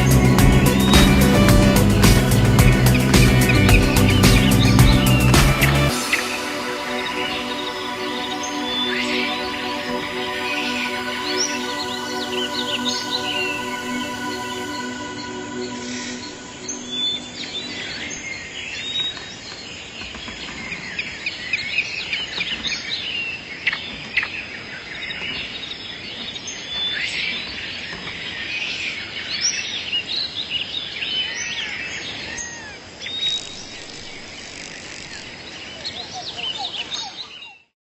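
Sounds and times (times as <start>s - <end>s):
birds chirping and whistling: 0.0s - 19.6s.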